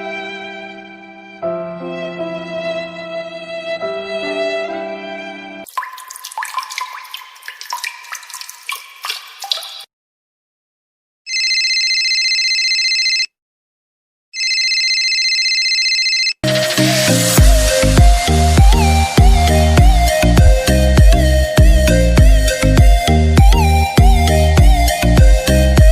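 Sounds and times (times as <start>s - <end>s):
water dripping and plinking: 5.7s - 9.9s
telephone ringing: 11.3s - 13.3s, 14.4s - 16.4s.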